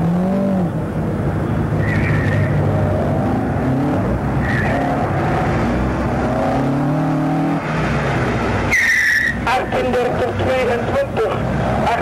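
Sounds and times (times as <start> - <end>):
car engine revving: 0.0 - 12.0
tyre squeal: 1.8 - 2.6, 4.4 - 5.0, 8.7 - 9.4.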